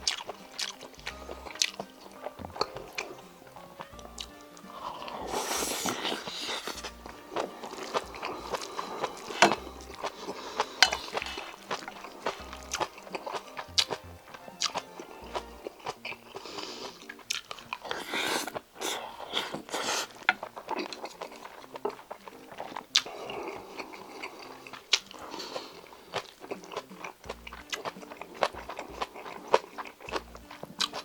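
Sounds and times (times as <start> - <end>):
chewing with mouth clicks: 0.0 - 31.0
quiet background music: 0.0 - 31.0
rustling and scraping: 5.2 - 9.6.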